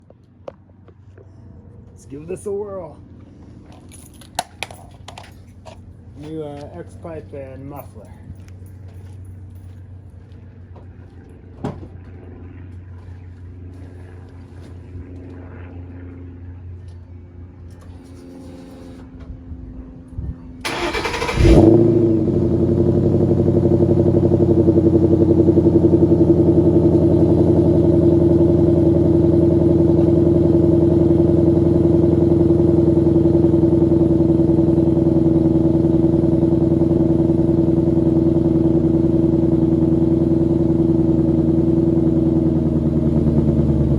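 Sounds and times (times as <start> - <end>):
car engine starting and idling: 20.6 - 43.9
starter cranking: 20.7 - 21.7.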